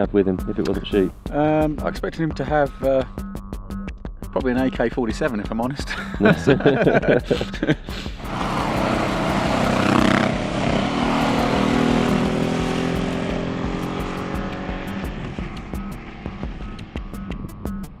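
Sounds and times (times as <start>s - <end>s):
music with a beat: 0.0s - 8.3s, 10.8s - 18.0s
motorcycle engines running: 8.2s - 18.0s.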